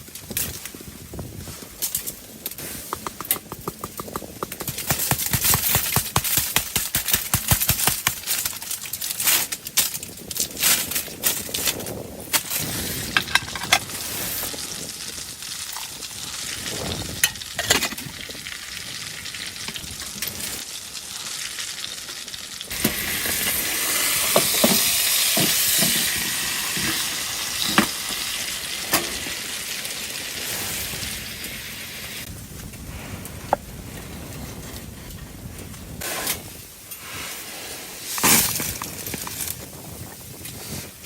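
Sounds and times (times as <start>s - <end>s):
sizzling in a hot pan: 13.8s - 32.3s.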